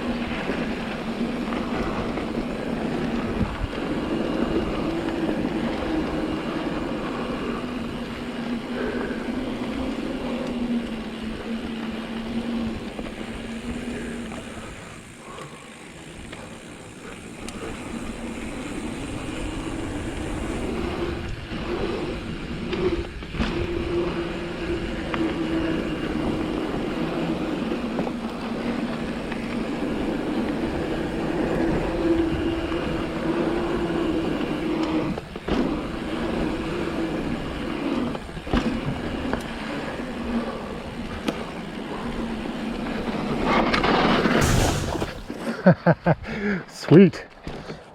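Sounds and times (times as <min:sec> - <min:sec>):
bike knocking and rattling: 0:00.0 - 0:21.4, 0:42.9 - 0:46.0
tyre and wind noise: 0:00.0 - 0:46.5.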